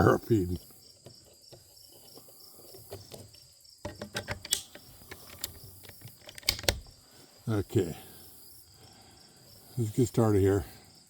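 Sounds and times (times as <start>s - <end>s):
crickets chirping: 0.0s - 11.0s
rifle metallic clicks and clacks: 3.9s - 6.9s.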